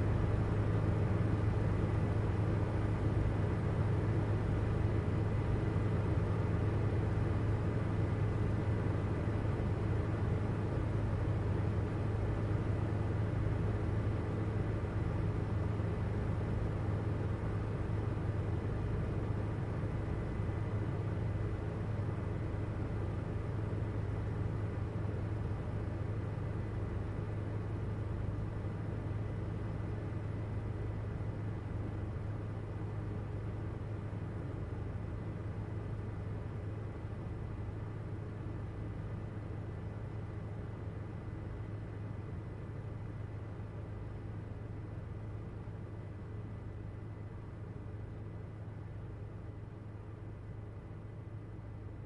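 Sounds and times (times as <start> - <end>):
helicopter cabin drone: 0.0 - 52.0.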